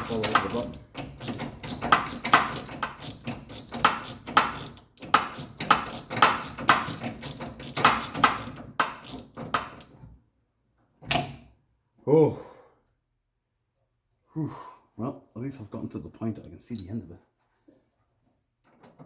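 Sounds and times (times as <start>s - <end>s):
hand tools clicking on metal: 0.0s - 10.0s.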